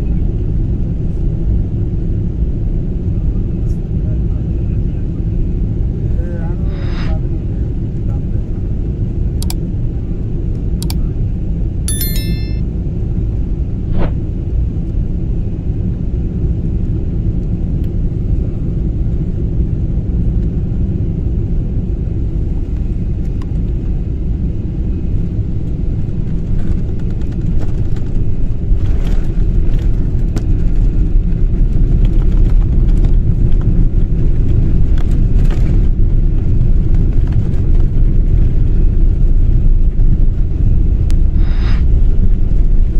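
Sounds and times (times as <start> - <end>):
jet airliner rumble: 0.0 - 10.5, 36.7 - 42.9
high chirp: 11.9 - 12.6, 41.4 - 41.8.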